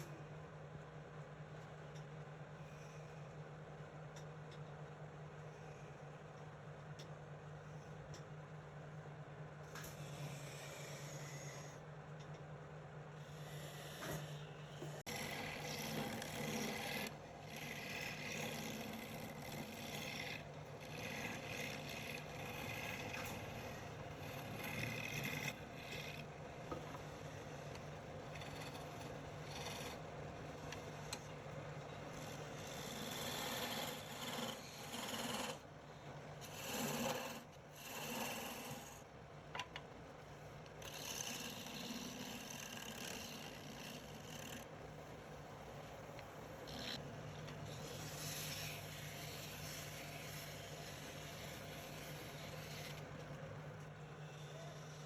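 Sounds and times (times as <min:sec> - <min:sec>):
wood lathe humming: 0:14.8 - 0:35.6, 0:36.4 - 0:39.0, 0:40.8 - 0:44.7, 0:45.8 - 0:55.0
scraping of spinning wood: 0:15.0 - 0:31.2.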